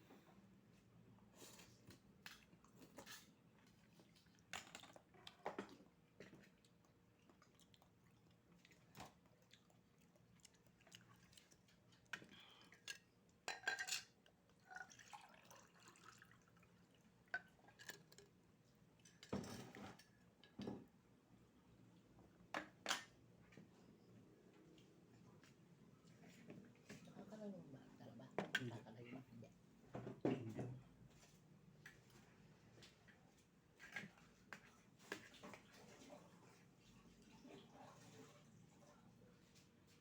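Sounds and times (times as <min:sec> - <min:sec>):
wet eating sounds: 0:02.2 - 0:13.0.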